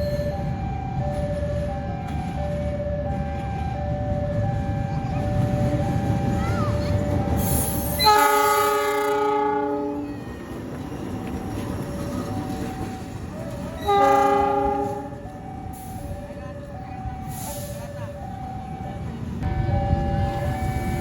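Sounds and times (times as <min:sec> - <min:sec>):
train rumbling: 0:00.0 - 0:21.0
train horn blasts: 0:08.0 - 0:10.2, 0:13.8 - 0:15.2.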